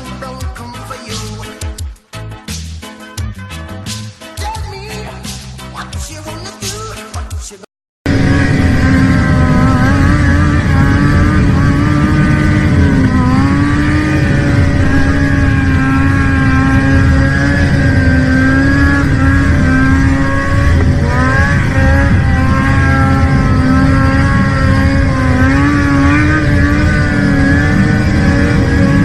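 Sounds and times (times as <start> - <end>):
vehicle engine revving high: 8.1 - 29.0.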